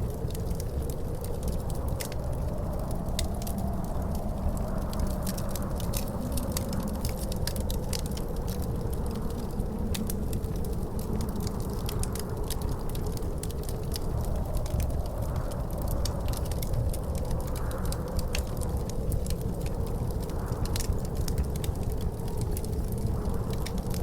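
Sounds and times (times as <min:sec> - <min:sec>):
low wind noise: 0:00.0 - 0:24.0
wood fire crackling and popping: 0:00.0 - 0:24.0.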